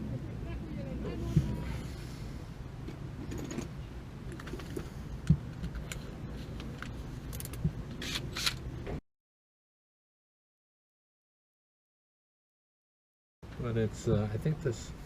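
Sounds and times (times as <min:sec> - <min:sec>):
low steady rumble: 0:00.0 - 0:09.0.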